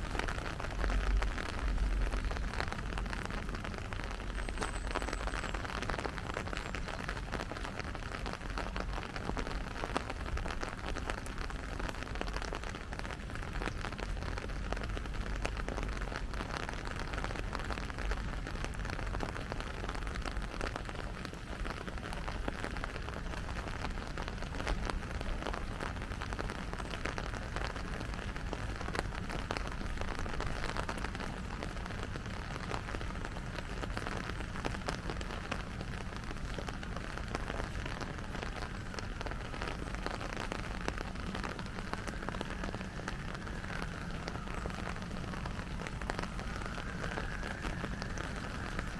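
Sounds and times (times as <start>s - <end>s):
rain falling: 0.0s - 48.9s
low rumble: 38.1s - 48.9s.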